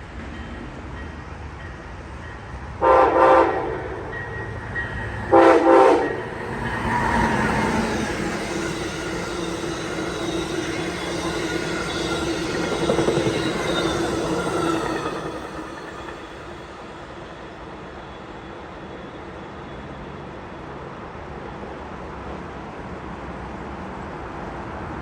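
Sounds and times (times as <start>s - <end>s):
train rumble: 0.0s - 18.8s
train horn blasts: 2.8s - 4.5s, 5.2s - 7.4s.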